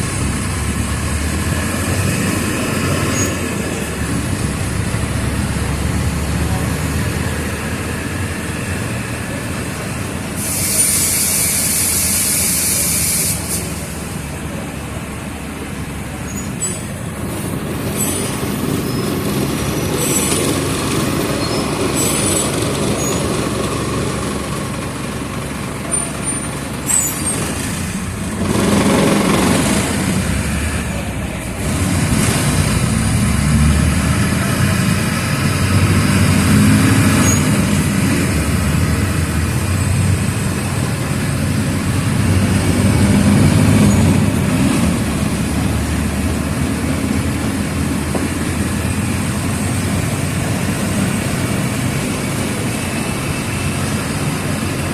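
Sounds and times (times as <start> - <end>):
bus diesel engine running: 0.0 - 54.9
sharp hiss: 10.3 - 14.1.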